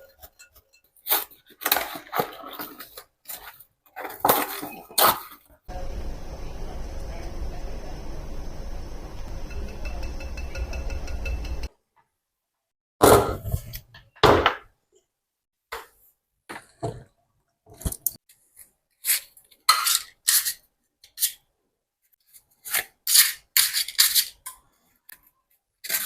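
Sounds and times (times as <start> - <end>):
handling scrapes and rustles: 0.0 - 5.6, 22.1 - 26.0.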